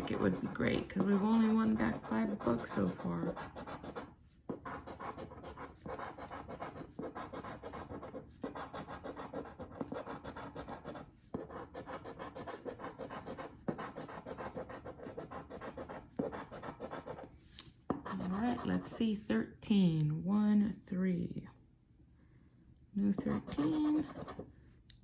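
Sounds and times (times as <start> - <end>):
scratching a scratch-off ticket: 0.0 - 17.3, 17.9 - 19.0, 23.0 - 24.4.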